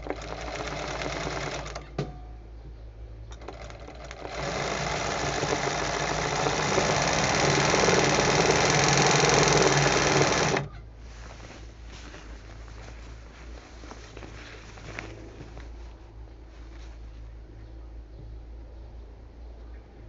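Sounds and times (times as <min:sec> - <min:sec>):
sewing machine stitching: 0:00.0 - 0:02.0, 0:03.3 - 0:10.7.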